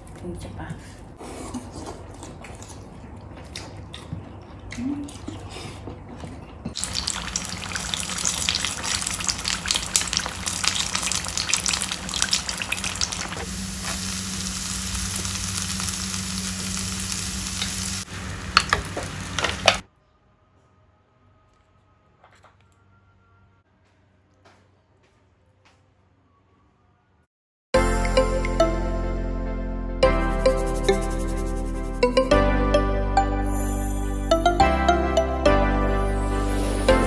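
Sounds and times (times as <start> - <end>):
food sizzling in hot oil: 6.8 - 19.8.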